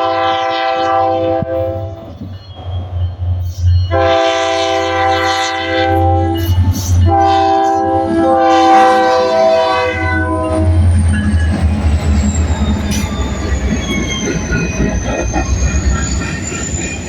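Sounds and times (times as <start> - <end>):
locomotive air horn chord: 0.0 - 2.1, 3.9 - 10.8
rail noise: 0.0 - 17.0
diesel engines rumbling: 9.6 - 17.0
faint high wheel squeal: 9.9 - 17.0.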